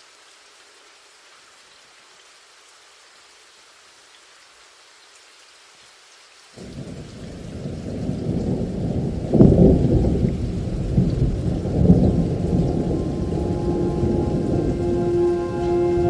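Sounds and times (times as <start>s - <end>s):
rain falling: 0.0s - 16.0s
thunder rumbling: 6.6s - 16.0s.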